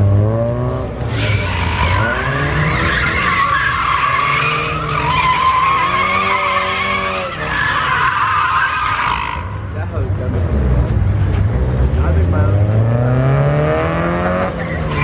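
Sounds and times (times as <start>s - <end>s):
car engine revving: 0.0s - 15.0s
car tires squealing on pavement: 1.0s - 9.8s, 14.0s - 15.0s.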